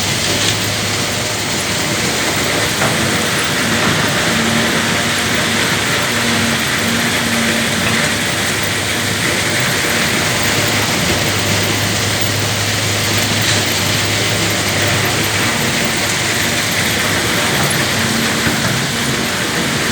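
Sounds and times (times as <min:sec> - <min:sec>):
diesel engine under load: 0:00.0 - 0:19.9
rattling grinding machinery: 0:00.0 - 0:19.9.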